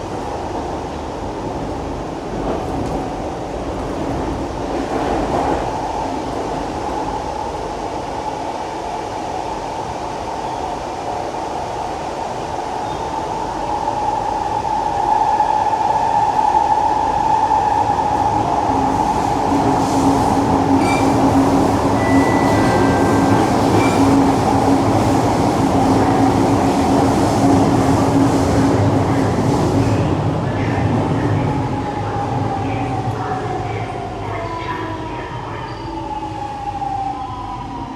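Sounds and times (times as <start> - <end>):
train wheels rumbling: 16.4 - 34.4.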